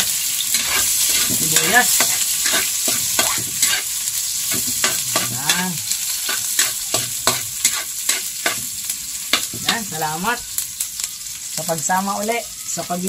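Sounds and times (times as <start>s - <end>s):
utensil scraping a wok: 0.0s - 10.3s
food sizzling in oil: 0.0s - 13.0s.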